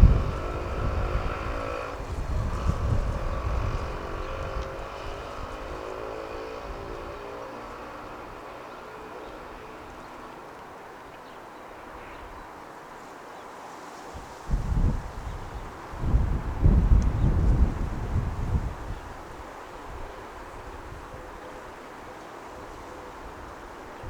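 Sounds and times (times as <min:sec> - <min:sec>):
wind buffeting microphone: 0:00.0 - 0:10.2, 0:14.1 - 0:21.5
vehicle engine passing: 0:00.0 - 0:10.4.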